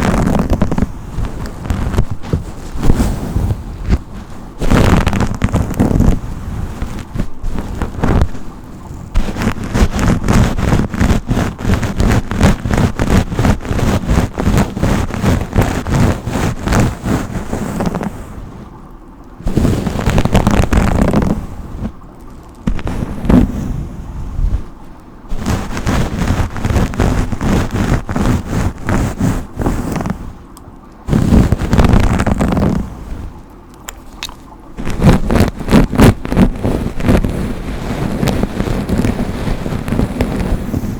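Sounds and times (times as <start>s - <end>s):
hairbrush strokes through hair: 0.0s - 5.7s, 25.3s - 30.2s.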